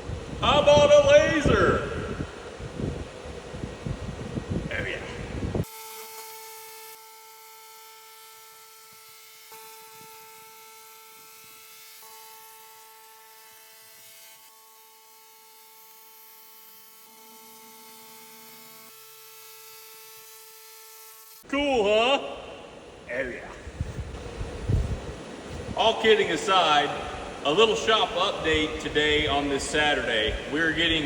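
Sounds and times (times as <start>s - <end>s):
laser machine electric buzzing hum: 5.6s - 21.4s.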